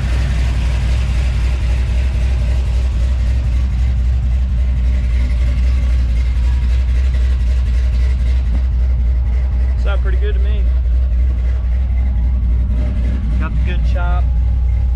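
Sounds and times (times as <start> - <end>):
engine rumbling through exhaust: 0.0 - 14.9.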